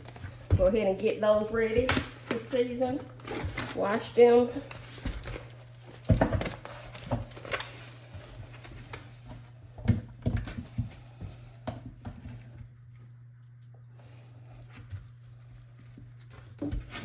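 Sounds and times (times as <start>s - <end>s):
kitchen items knocking and clunking: 0.0s - 12.7s
steady low hum: 0.0s - 17.0s.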